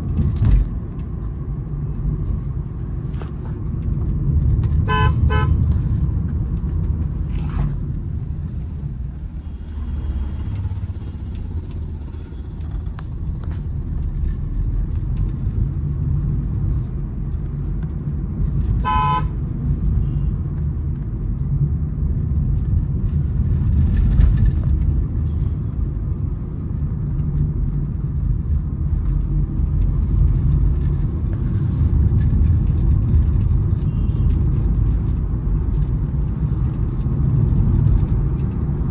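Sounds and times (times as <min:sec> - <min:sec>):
car road and engine rumble: 0:00.0 - 0:38.9
car horn toot: 0:04.9 - 0:05.6, 0:18.8 - 0:19.4.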